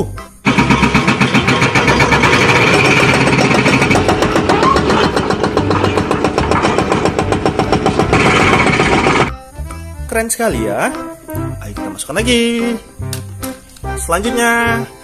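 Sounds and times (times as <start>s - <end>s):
hydraulic rock breaker hammering: 0.4s - 9.3s
excavator engine running: 0.4s - 9.4s.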